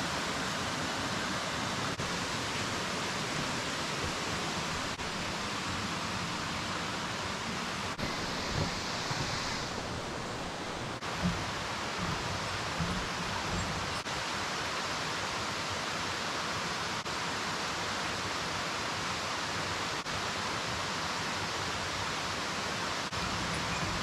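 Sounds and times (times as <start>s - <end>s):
waterfall roaring: 0.0s - 24.0s.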